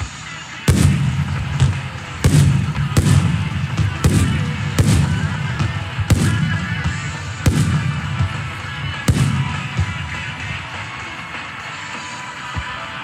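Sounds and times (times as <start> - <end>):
firework shells booming: 0.7 - 10.8
low rumbling echo: 0.7 - 11.1.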